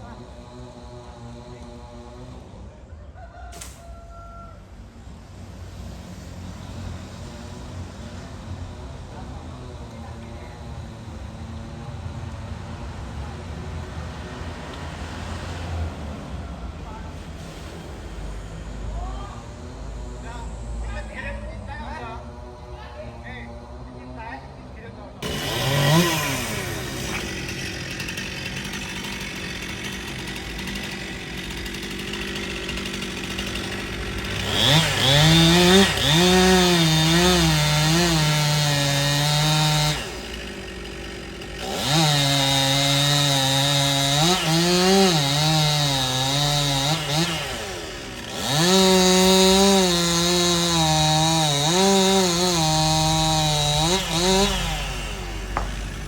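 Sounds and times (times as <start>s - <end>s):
chainsaw idling and revving: 0.0s - 2.8s, 25.2s - 56.0s.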